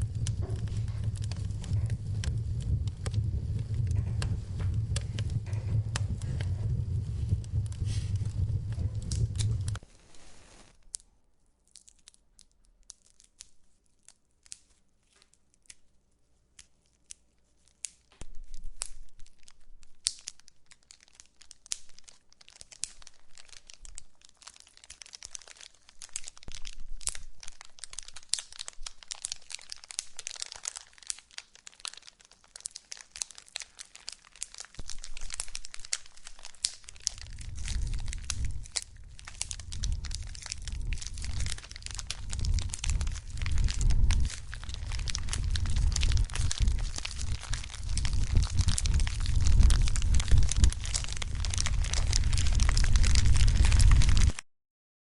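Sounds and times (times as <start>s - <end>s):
low rumble: 0.0s - 9.8s, 34.8s - 54.4s
wood fire crackling: 0.0s - 11.0s, 18.2s - 54.4s.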